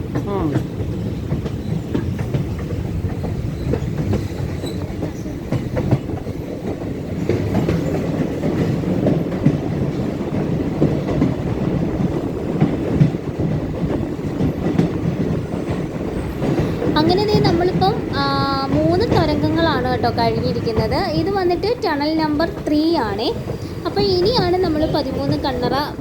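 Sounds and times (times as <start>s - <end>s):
train rumble: 0.0s - 26.0s
wheels clacking over rail joints: 0.0s - 26.0s.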